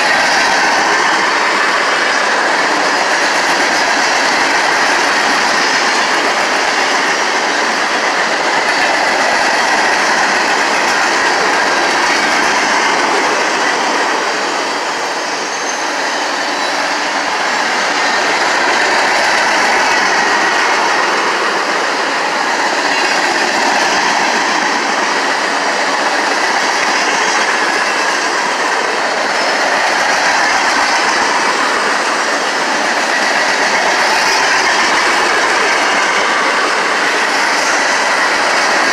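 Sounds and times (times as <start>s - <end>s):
train rolling on rails: 0.0s - 38.9s.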